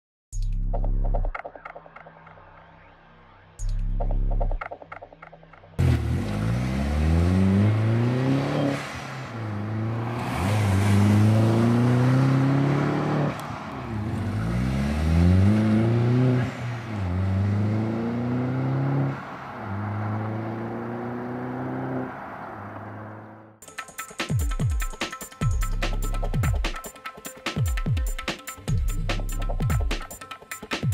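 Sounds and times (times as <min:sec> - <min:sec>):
car engine revving: 0:05.8 - 0:23.6.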